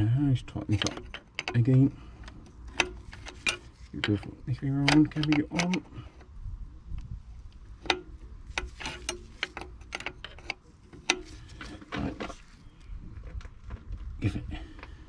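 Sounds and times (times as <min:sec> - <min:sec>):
hand tool clicking and tapping metal: 0:00.6 - 0:06.3, 0:07.5 - 0:12.6.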